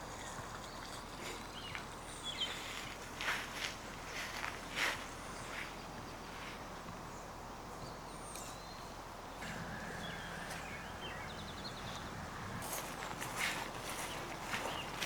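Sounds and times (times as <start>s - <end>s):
small birds chirping: 0.0s - 3.0s, 3.6s - 15.0s
outdoor background noise: 0.0s - 15.0s
footstep: 11.8s - 15.0s.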